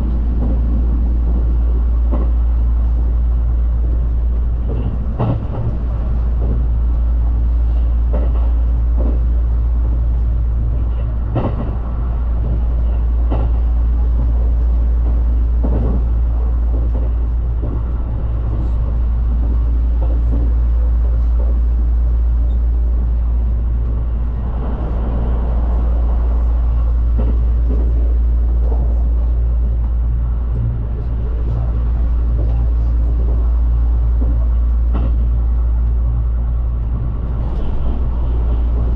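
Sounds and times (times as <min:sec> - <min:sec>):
train rumbling: 0:00.0 - 0:38.9.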